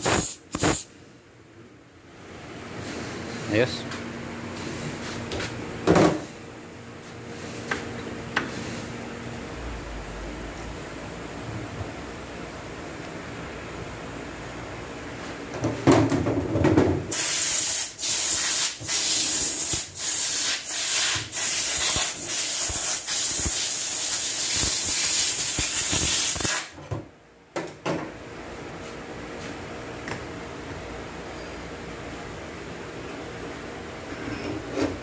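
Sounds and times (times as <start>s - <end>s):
compressed air bursts: 0.0s - 0.9s, 17.1s - 26.7s.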